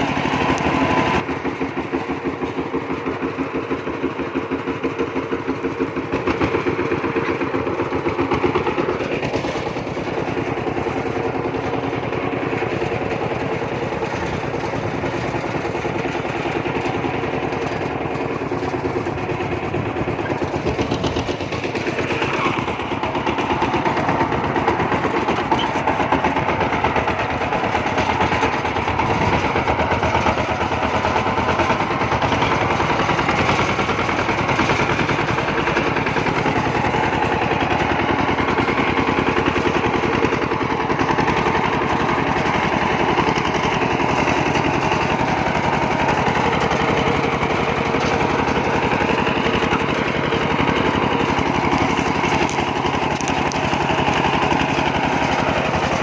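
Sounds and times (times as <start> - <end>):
diesel tractor engine running: 0.0 - 56.0.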